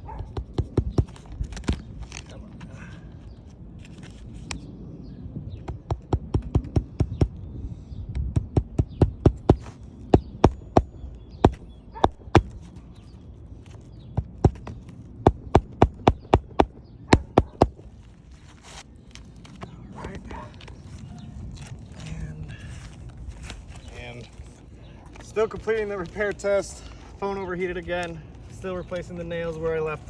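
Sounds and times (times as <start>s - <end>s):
hammer striking roofing nails: 0.3s - 1.8s, 5.7s - 7.4s, 8.2s - 12.6s, 14.2s - 17.8s.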